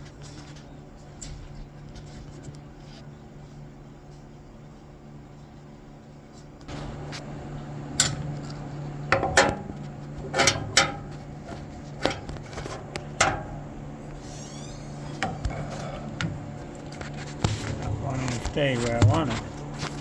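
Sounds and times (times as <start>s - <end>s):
steady low hum: 0.0s - 20.0s
metal parts clanking: 10.3s - 11.2s.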